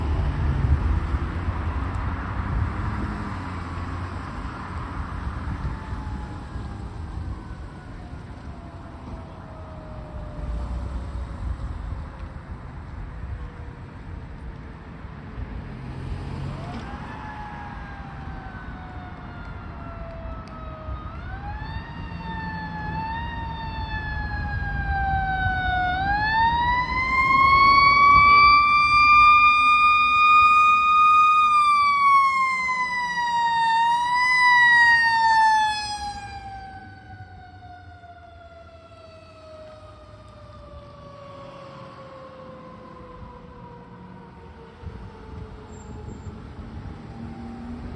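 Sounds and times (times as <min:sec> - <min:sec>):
fire truck engine rumbling: 0:00.0 - 0:47.9
mechanical siren wailing: 0:05.4 - 0:11.2, 0:16.6 - 0:47.9.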